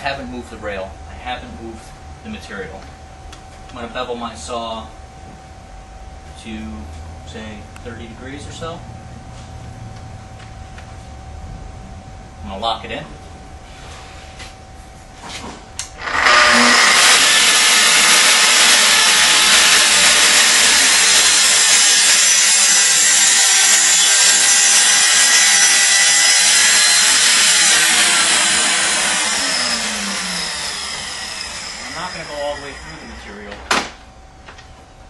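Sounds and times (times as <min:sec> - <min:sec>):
track saw cutting: 0:15.9 - 0:33.6.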